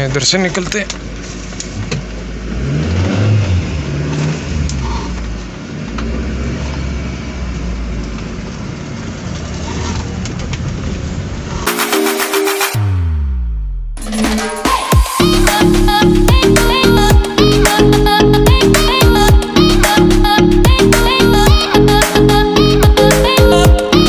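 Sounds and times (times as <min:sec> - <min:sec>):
car engine pulling away: 0:00.7 - 0:11.6
music: 0:11.7 - 0:24.0.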